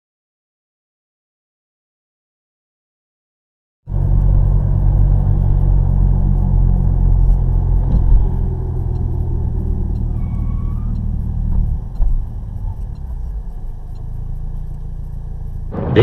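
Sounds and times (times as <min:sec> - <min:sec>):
car engine and road rumble: 0:03.9 - 0:16.0.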